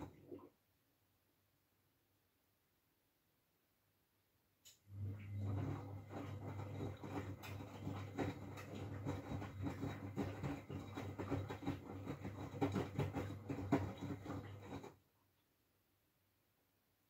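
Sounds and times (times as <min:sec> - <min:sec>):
laundry and water sloshing: 0:04.9 - 0:15.0
washing machine drum turning: 0:05.0 - 0:14.9.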